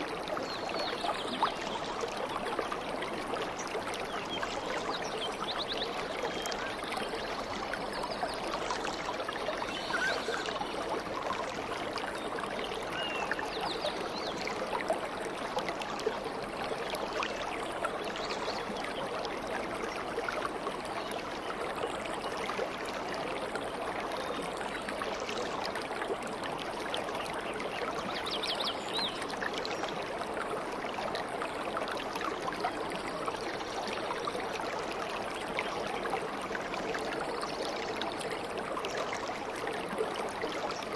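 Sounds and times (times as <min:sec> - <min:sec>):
babbling stream: 0:00.0 - 0:40.9
faint bird chirps: 0:09.6 - 0:10.6.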